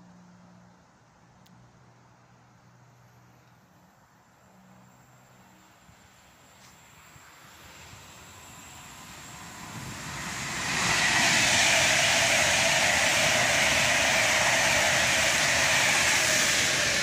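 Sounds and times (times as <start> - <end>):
passenger train passing at speed: 4.3 - 17.0.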